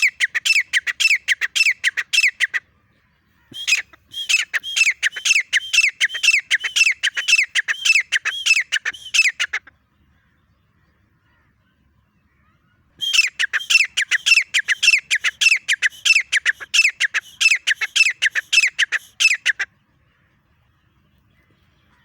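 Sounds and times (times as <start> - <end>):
bird calling harsh repeated notes: 0.0 - 2.6, 3.4 - 9.7, 13.0 - 19.7.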